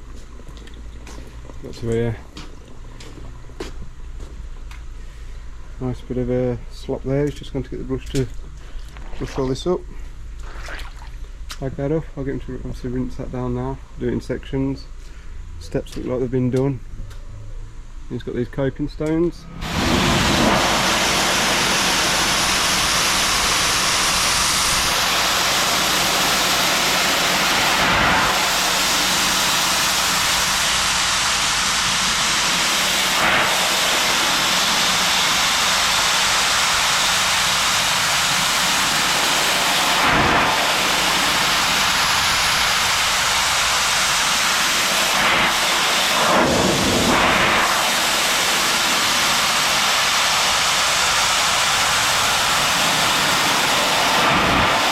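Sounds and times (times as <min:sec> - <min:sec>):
low hum: 0:00.0 - 0:33.2
pressure washer spraying stone: 0:19.6 - 0:54.9.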